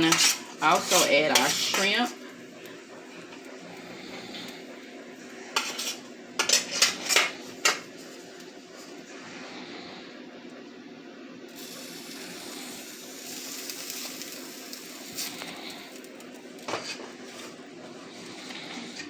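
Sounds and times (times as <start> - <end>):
food sizzling in a pan: 0.0 - 8.3, 11.5 - 17.6.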